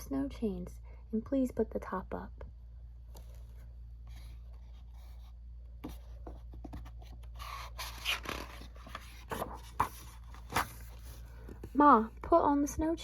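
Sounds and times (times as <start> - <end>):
low steady hum: 0.0 - 13.0
book pages rustling and turning: 3.1 - 12.1.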